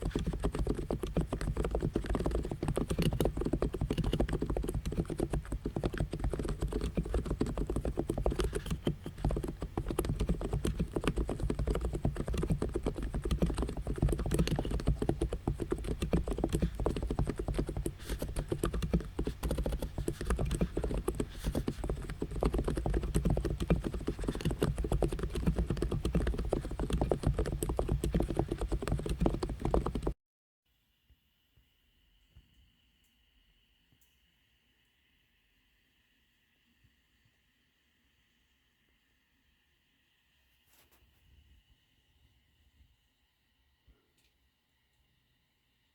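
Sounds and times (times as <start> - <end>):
fast keyboard typing: 0.0 - 30.2.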